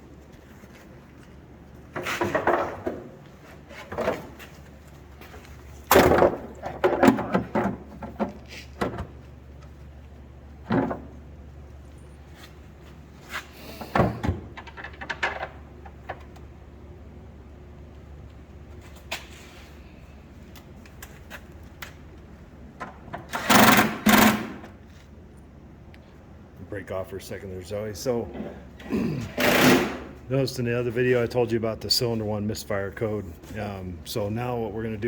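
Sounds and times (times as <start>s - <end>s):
clunks of parts and tools: 5.9s - 9.1s.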